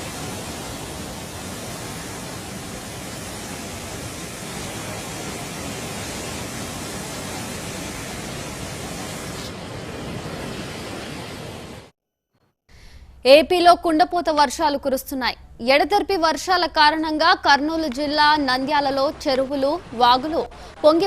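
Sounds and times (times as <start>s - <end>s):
floodwater rushing in stream: 0.0s - 11.9s.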